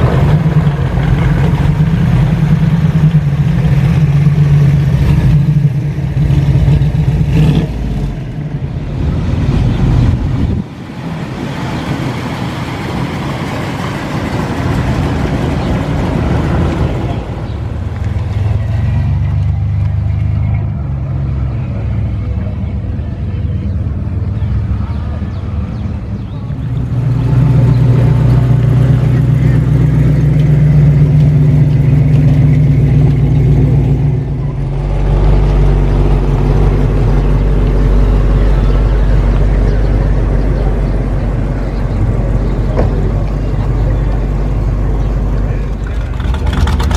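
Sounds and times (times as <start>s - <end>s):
cars driving by: 0.0s - 46.9s
deeper engine rumble: 0.0s - 46.9s
engine drone: 0.0s - 46.9s.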